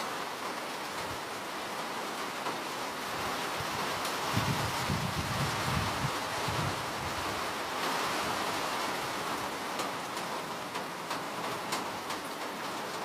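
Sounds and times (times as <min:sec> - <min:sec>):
steady rain hiss: 0:00.0 - 0:13.0
raindrops ticking: 0:09.2 - 0:13.0.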